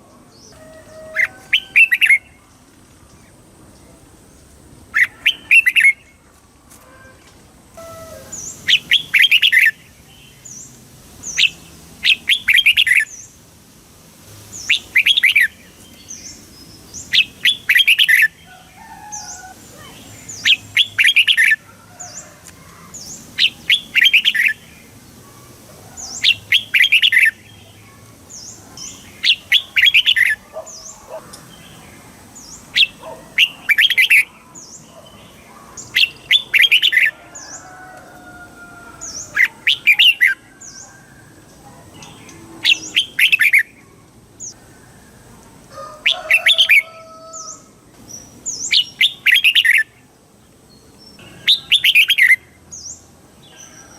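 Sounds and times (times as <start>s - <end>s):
bird singing warbled phrases: 0.0s - 6.2s, 7.8s - 13.4s, 14.5s - 37.6s, 39.0s - 41.0s, 41.6s - 44.6s, 46.0s - 53.9s.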